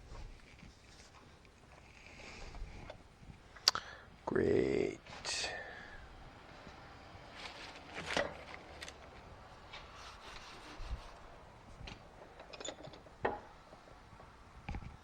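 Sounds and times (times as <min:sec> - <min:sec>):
hand tools scraping metal: 0:07.3 - 0:11.5.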